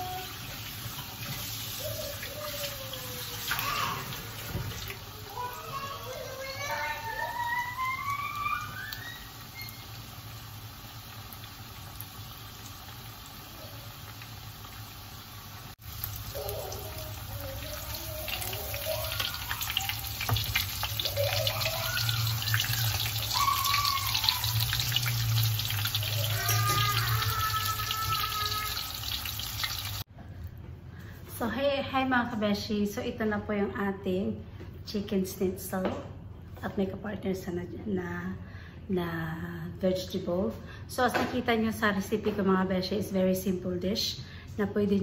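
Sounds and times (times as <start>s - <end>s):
chicken frying in hot oil: 0.0s - 30.1s.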